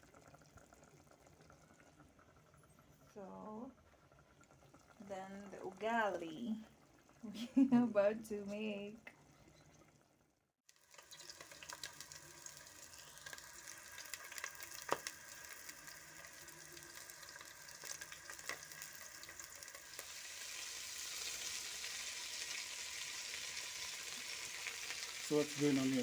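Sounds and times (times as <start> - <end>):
food sizzling in oil: 10.7 - 26.0.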